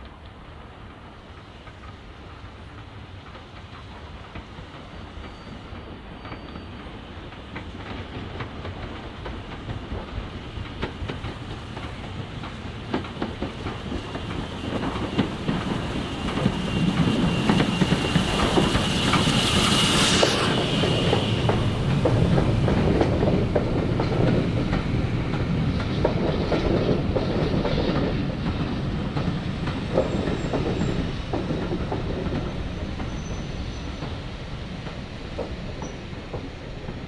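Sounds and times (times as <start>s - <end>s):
train wheels clickety-clack: 0.0s - 37.0s
high hiss: 15.3s - 22.3s.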